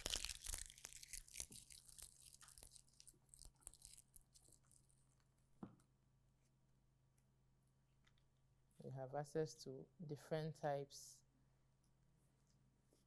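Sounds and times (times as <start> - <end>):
dry leaves rustling and crackling: 0.0 - 4.7
soft knock: 5.6 - 5.8.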